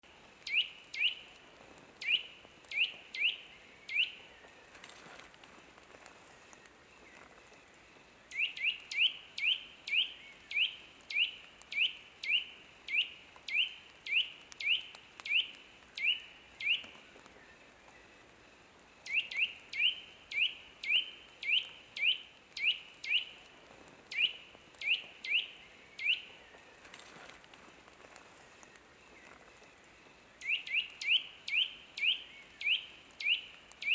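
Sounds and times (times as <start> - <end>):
bird chirping: 0.5 - 1.4, 2.0 - 5.0, 8.3 - 18.2, 19.0 - 23.4, 24.1 - 27.2, 30.4 - 33.9.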